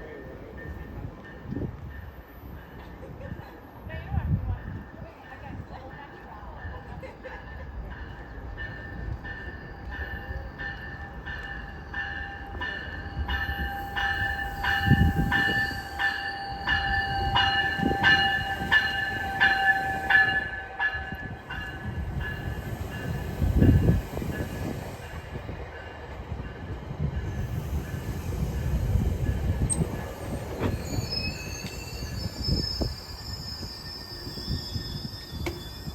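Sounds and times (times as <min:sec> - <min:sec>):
low rumble of train: 0:00.0 - 0:35.9
high squeal: 0:29.7 - 0:35.9.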